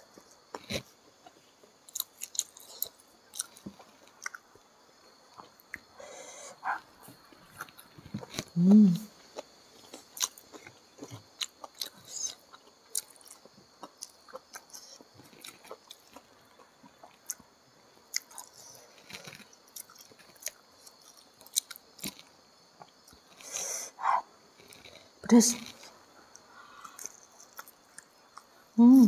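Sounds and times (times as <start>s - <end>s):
chewing and wet mouth sounds: 9.3s - 23.6s, 25.8s - 28.6s.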